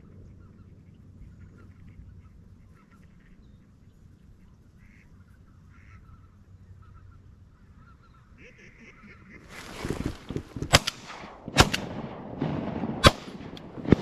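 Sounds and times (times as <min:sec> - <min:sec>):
steady low rumble: 0:00.0 - 0:14.0
waterfowl calling: 0:04.7 - 0:10.1.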